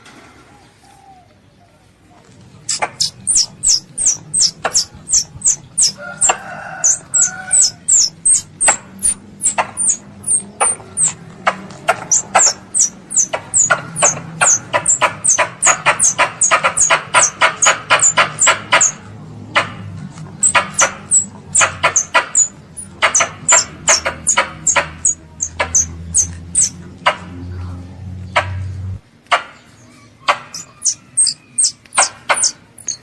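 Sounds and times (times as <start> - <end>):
squirrel high sharp chirps: 2.6 - 19.0, 20.4 - 26.8, 30.3 - 33.0.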